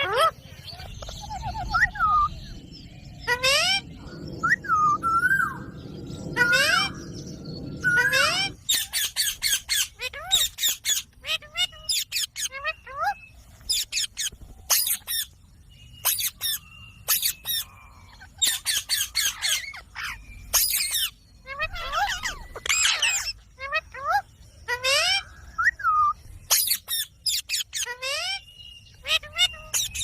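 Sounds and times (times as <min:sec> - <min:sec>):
parrot screeching: 0:03.3 - 0:03.8, 0:06.4 - 0:07.0, 0:07.8 - 0:15.3, 0:16.0 - 0:25.2, 0:26.5 - 0:28.4, 0:29.0 - 0:30.0
parrot chattering calls: 0:08.0 - 0:15.3, 0:16.0 - 0:25.2, 0:26.5 - 0:28.4.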